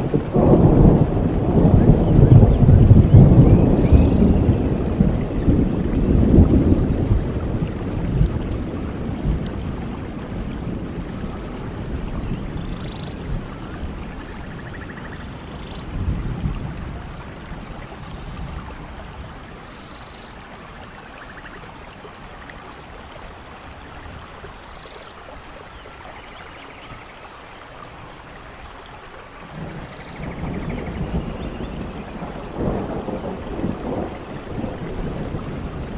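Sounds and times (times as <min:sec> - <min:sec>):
rolling thunder: 0:00.0 - 0:19.6, 0:29.5 - 0:35.9
steady rain: 0:00.0 - 0:35.9.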